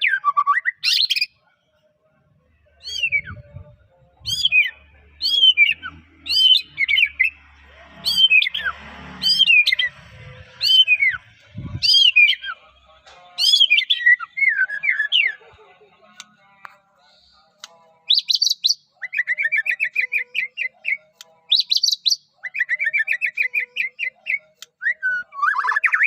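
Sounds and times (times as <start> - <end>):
bird singing whistles: 2.8 - 3.6, 4.3 - 7.4, 10.6 - 11.2, 11.8 - 12.6, 13.4 - 15.4, 18.1 - 26.0.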